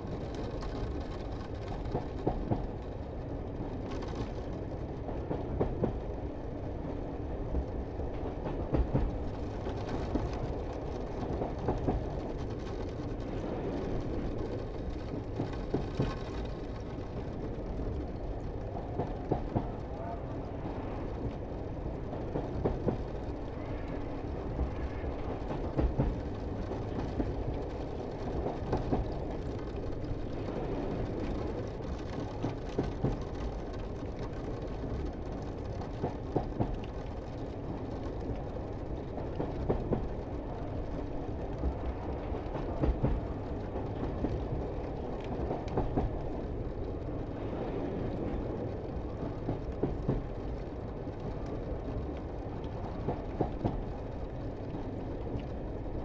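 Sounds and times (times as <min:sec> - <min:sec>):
train rumble: 0:00.0 - 0:56.0.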